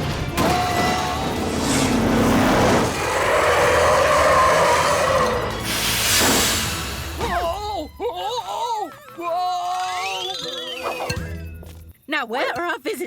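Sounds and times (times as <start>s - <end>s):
background music: 0.0s - 12.4s
cartoon wheels screeching: 8.8s - 11.2s.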